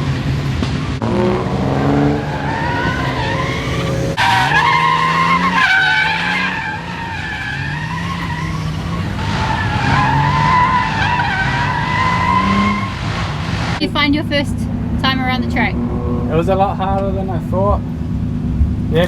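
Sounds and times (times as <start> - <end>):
car engine revving: 0.0 - 19.0
tyres squealing: 2.0 - 13.8.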